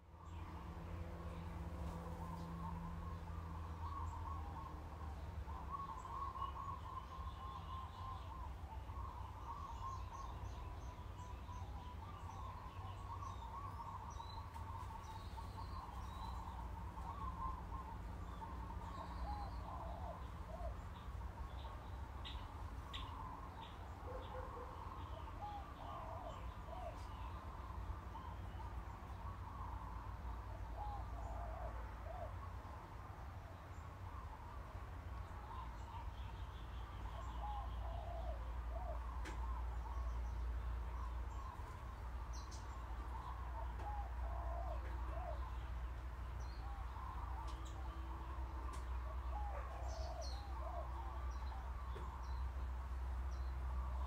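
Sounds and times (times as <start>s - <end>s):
low steady hum: 0.0s - 54.0s
small birds chirping: 0.0s - 54.0s.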